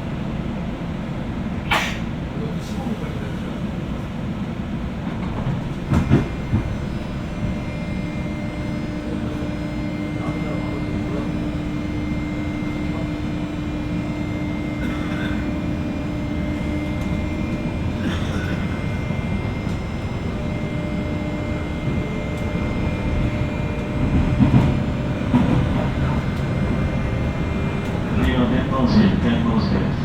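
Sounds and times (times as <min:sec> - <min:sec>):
wheels rumbling on rail: 0:00.0 - 0:30.0
train knocks: 0:01.6 - 0:30.0
electrical hum: 0:05.4 - 0:30.0.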